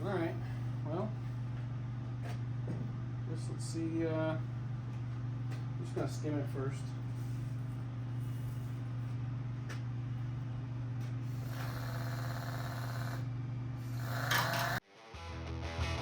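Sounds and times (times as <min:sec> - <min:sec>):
cutting wheel grinding metal: 0:11.3 - 0:13.2, 0:13.8 - 0:14.8
power cutting tool humming: 0:11.3 - 0:14.8
music: 0:14.9 - 0:16.0.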